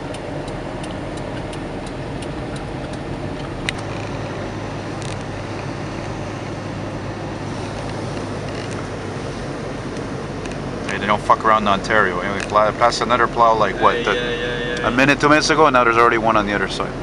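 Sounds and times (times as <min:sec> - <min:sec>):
light ticks: 0:00.0 - 0:03.8, 0:09.9 - 0:11.0
car road and engine noise: 0:00.0 - 0:17.0.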